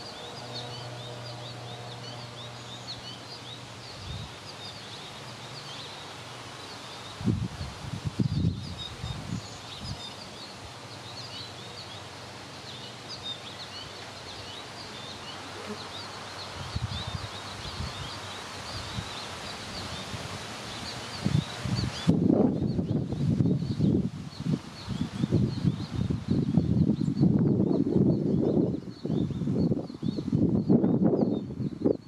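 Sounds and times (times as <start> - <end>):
wind rumble on microphone: 0.0 - 4.9, 7.0 - 11.8, 16.4 - 32.0
small birds chirping: 0.0 - 32.0.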